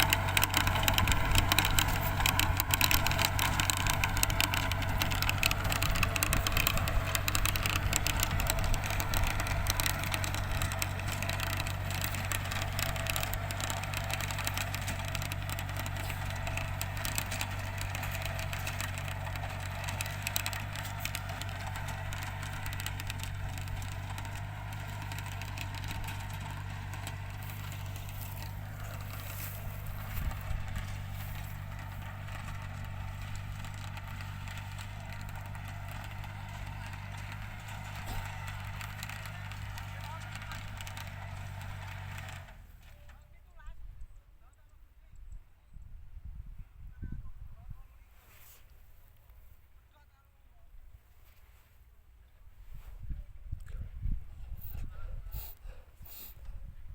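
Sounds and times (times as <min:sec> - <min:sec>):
crackling noise: 0:00.0 - 0:42.6
tractor engine running: 0:00.0 - 0:43.9.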